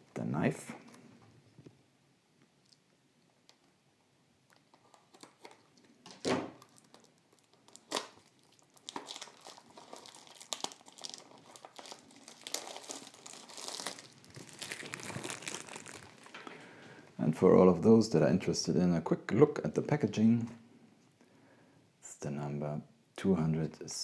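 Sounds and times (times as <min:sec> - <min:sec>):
wrapping crinkling: 0:04.5 - 0:17.0.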